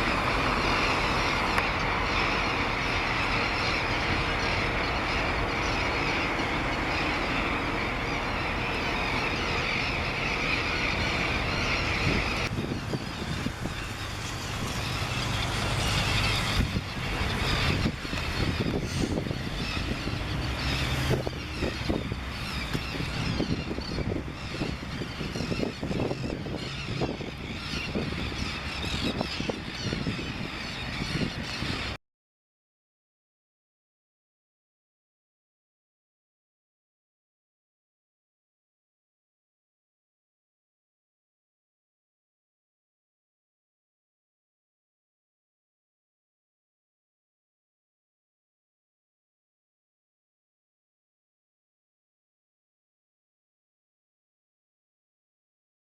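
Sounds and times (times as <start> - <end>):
low wind rumble: 0.0 - 32.0
terns calling: 0.0 - 32.0.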